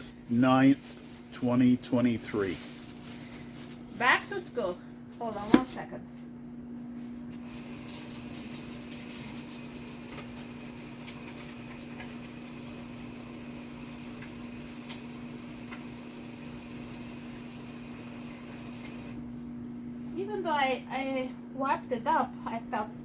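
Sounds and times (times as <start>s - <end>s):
microwave oven humming: 0.0s - 23.0s.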